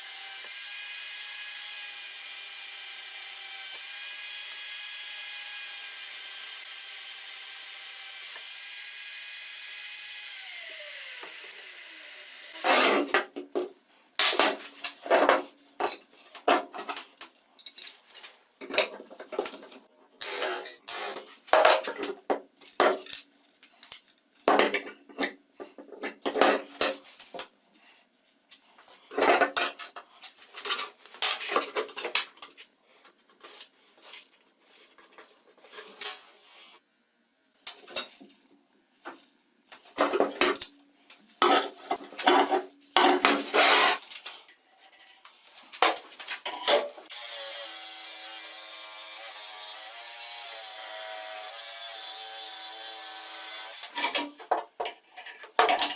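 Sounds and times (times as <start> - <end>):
power tool running: 0.0 - 13.0, 47.1 - 54.0.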